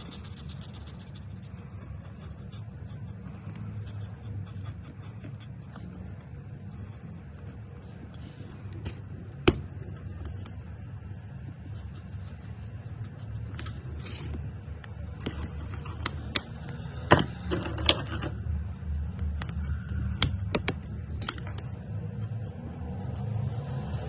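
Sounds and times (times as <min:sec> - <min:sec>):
marker strokes on paper: 0:00.0 - 0:05.9, 0:11.4 - 0:14.4
low steady hum: 0:00.0 - 0:24.0.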